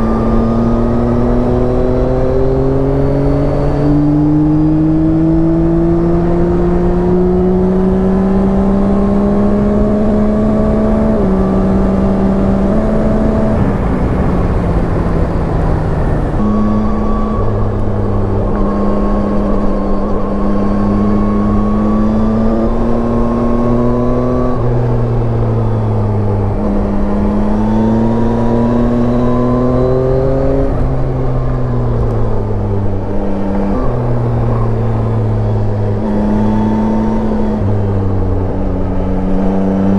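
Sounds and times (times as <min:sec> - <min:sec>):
motorcycle engine on the road: 0:00.0 - 0:39.9
wind rush: 0:09.1 - 0:18.8.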